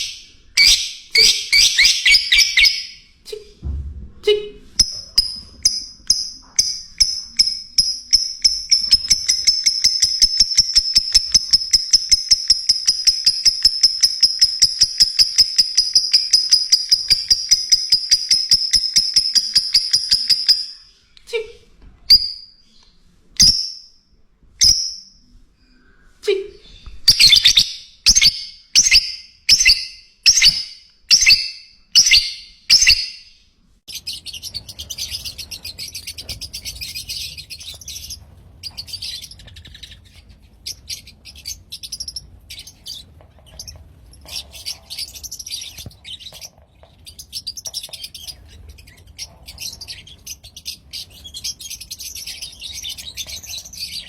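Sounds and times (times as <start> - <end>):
lovebirds calling: 0.0 - 3.4, 4.7 - 21.0, 26.6 - 54.0
high-pitched bird chattering: 0.0 - 3.5, 4.8 - 20.9, 27.1 - 33.3, 33.9 - 46.5.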